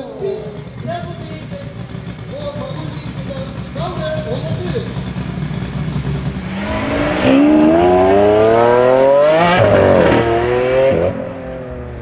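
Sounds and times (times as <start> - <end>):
car engine accelerating hard: 5.2 - 12.0.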